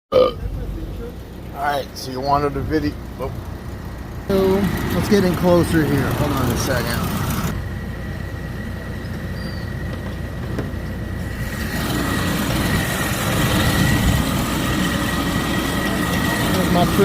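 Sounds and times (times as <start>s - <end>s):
car engine idling: 0.2s - 17.0s
steady high whine: 0.2s - 17.0s.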